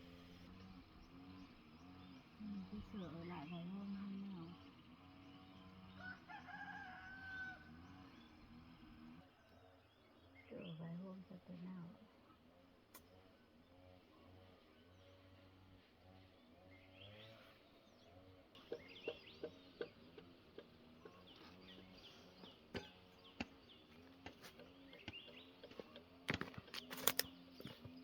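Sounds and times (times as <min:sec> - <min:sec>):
small birds chirping: 0:00.0 - 0:28.0
sharp clicks and knocks: 0:22.7 - 0:28.0.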